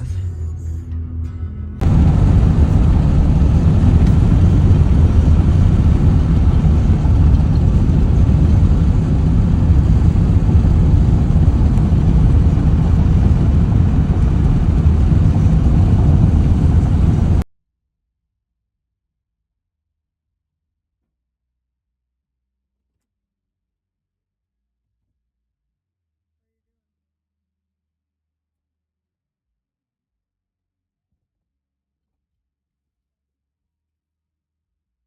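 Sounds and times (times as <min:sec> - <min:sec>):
vehicle engine and road rumble: 0:01.8 - 0:17.4.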